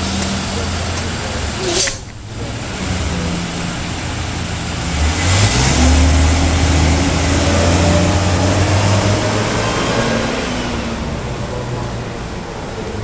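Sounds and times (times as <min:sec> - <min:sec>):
bus engine idling: 0:00.0 - 0:09.5.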